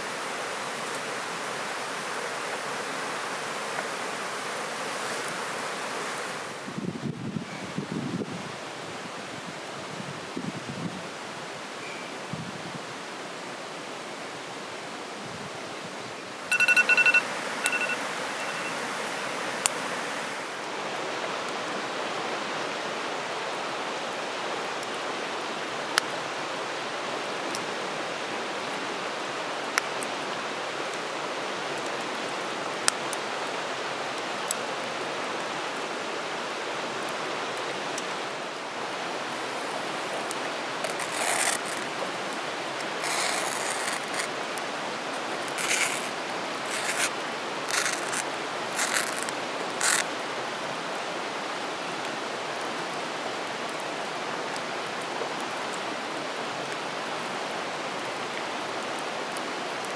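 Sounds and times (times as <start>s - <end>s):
stream flowing: 0.0s - 6.9s, 12.9s - 59.9s
high pitched beeping: 16.5s - 18.8s
rustling: 39.4s - 50.1s.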